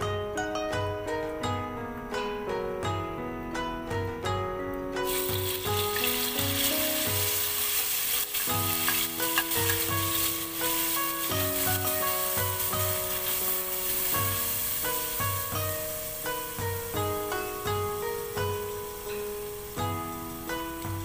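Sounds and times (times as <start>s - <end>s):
plucked-string background music: 0.0s - 21.0s
metal spatula stirring: 5.1s - 16.2s
paste sizzling in hot oil: 5.1s - 17.3s.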